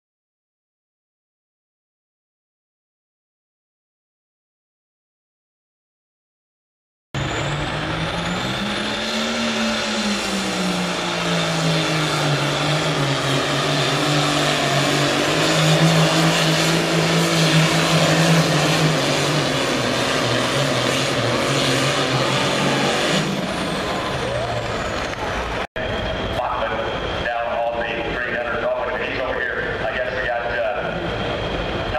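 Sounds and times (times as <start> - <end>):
tractor diesel engine at high revs: 7.2 - 26.9
high turbo whine: 7.2 - 31.9.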